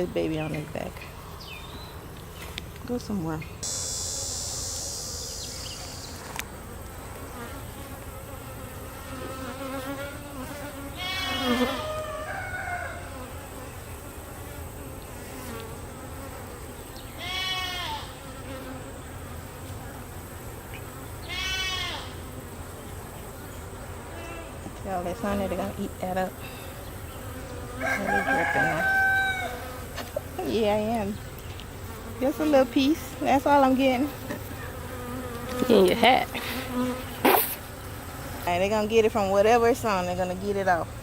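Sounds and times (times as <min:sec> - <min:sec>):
honeybees buzzing: 0:00.0 - 0:41.0
goats bleating: 0:11.0 - 0:11.9, 0:17.2 - 0:18.1, 0:21.3 - 0:22.1.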